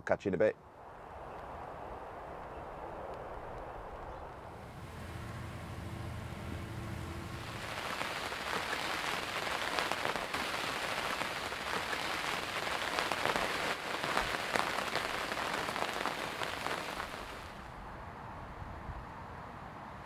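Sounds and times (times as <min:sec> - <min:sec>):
heavy rain falling on a lake: 0:04.6 - 0:17.7
raindrops ticking on fabric: 0:07.4 - 0:17.5.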